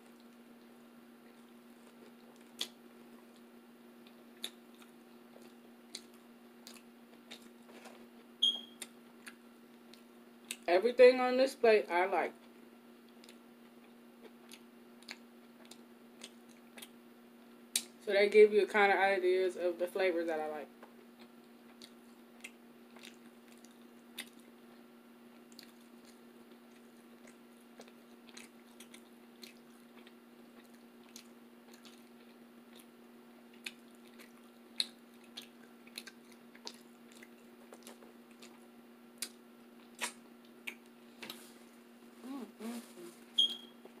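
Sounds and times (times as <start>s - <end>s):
steady low hum: 0.0s - 44.0s
wet chewing mouth clicks: 25.5s - 32.9s, 33.6s - 38.6s, 39.2s - 41.4s.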